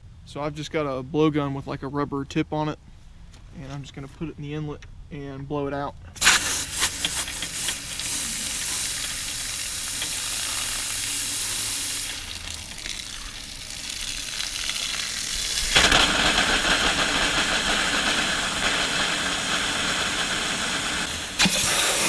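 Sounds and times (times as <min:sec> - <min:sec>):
compressed air hissing: 0:06.2 - 0:22.0.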